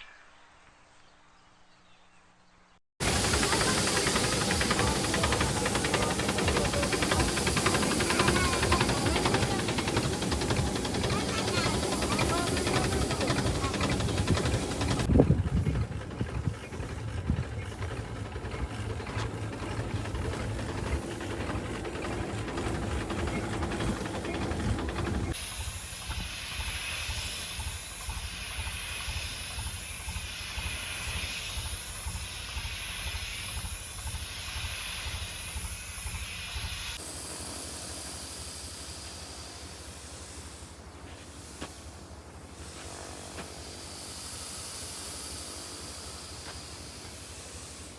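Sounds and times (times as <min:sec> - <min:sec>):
liquid spraying hiss: 0:03.0 - 0:15.1, 0:25.4 - 0:47.9
sprayer pump pulsing: 0:03.0 - 0:47.9.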